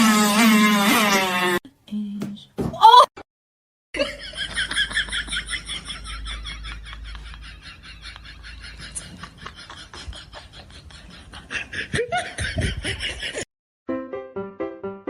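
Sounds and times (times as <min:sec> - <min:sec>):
person laughing: 0:04.0 - 0:13.4
piano music: 0:13.9 - 0:15.0.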